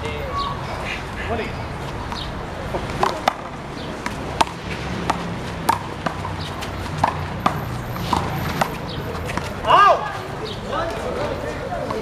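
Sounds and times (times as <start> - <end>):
ball smacking off wall and pavement: 2.8 - 9.8.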